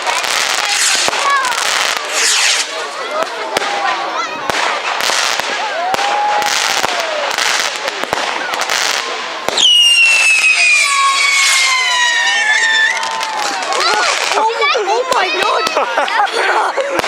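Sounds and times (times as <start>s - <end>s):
whistling firework: 0.0s - 2.8s, 4.5s - 14.4s
fireworks bangs and crackling: 0.0s - 17.0s.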